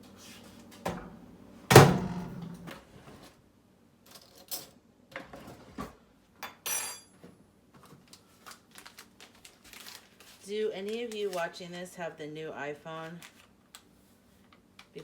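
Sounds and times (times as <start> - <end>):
dishes and cutlery clinking: 6.4 - 7.2.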